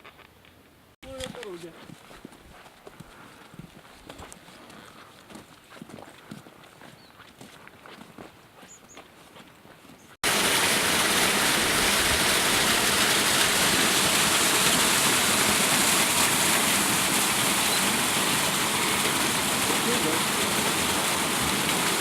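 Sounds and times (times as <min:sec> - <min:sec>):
running water rushing: 0:10.2 - 0:22.0.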